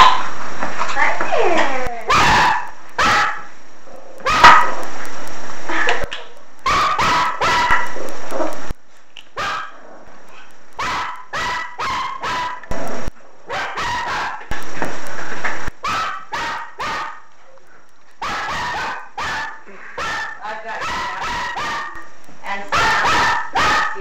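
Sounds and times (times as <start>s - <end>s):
puppies yapping: 2.1s - 3.5s, 4.2s - 4.8s, 6.7s - 8.6s, 9.4s - 9.8s, 10.4s - 12.7s, 13.5s - 14.5s, 15.8s - 17.3s, 18.2s - 22.1s, 22.7s - 24.0s.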